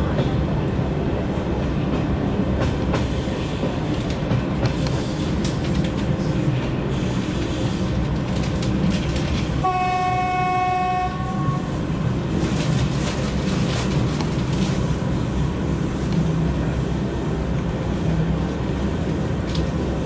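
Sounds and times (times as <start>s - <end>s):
train rumbling at speed: 0.0s - 20.0s
train horn blast: 9.6s - 11.8s.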